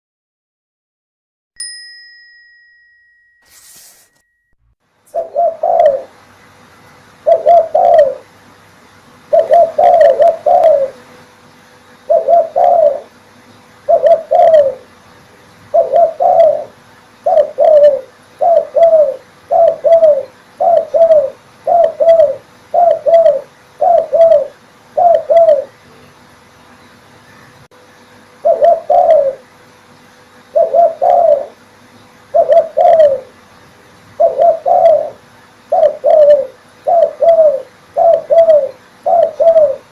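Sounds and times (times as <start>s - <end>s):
dove cooing: 5.1s - 6.2s, 7.2s - 8.3s, 9.3s - 11.2s, 12.0s - 13.2s, 13.8s - 14.9s, 15.7s - 25.8s, 28.4s - 29.5s, 30.5s - 31.6s, 32.3s - 33.4s, 34.2s - 39.9s.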